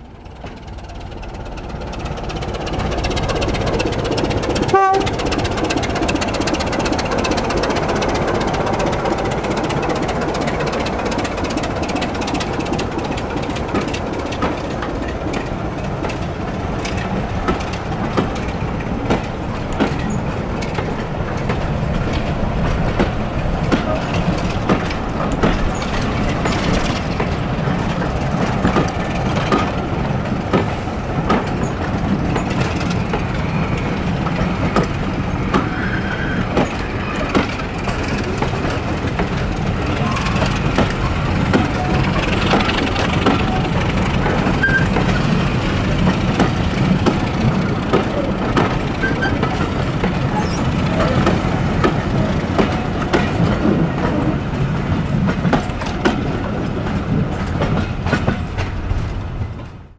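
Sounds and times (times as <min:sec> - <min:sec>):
diesel train rumbling past: 0:00.0 - 0:59.9
wheels clicking over rail joints: 0:00.0 - 0:59.9.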